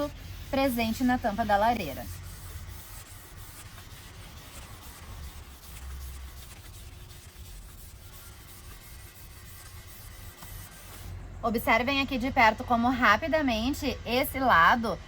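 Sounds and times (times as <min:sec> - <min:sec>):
sponge rubbing on steel: 0:00.0 - 0:11.2.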